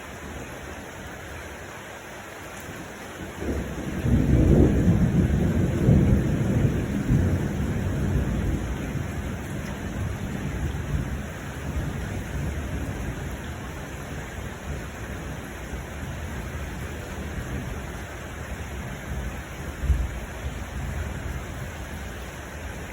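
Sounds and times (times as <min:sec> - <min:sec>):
steady rain: 0:00.0 - 0:22.9
rolling thunder: 0:03.2 - 0:13.5, 0:18.5 - 0:21.6.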